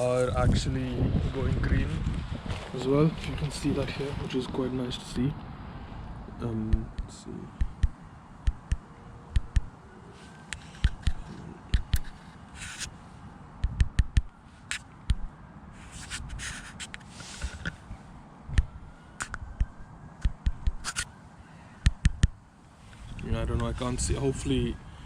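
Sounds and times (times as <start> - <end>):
low wind buffeting: 0.0 - 25.0
camera handling clicks and scrapes: 10.5 - 12.9, 15.9 - 17.8, 20.8 - 21.1.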